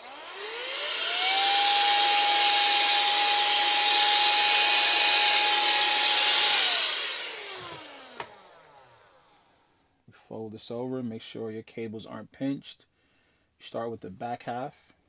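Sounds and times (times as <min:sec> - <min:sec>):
electric air duster whine: 0:00.0 - 0:09.7.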